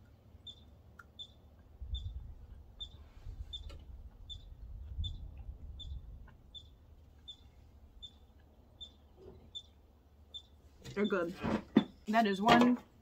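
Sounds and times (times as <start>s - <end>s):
wind rumble on microphone: 1.8s - 6.6s
bird chirping high call: 4.3s - 5.2s, 5.8s - 7.4s.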